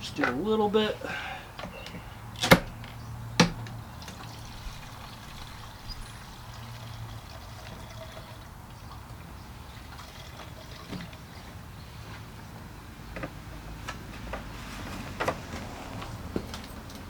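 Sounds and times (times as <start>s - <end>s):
gasoline trickling into tank: 1.0s - 11.7s.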